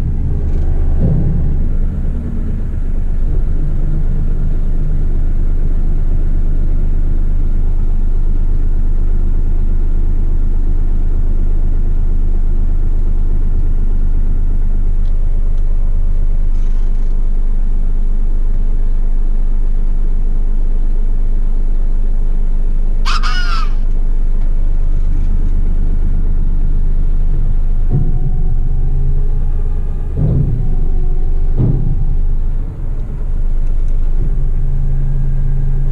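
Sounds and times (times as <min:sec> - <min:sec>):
diesel truck engine rumbling: 0:00.0 - 0:35.9
short high-pitched squawk: 0:23.0 - 0:23.9.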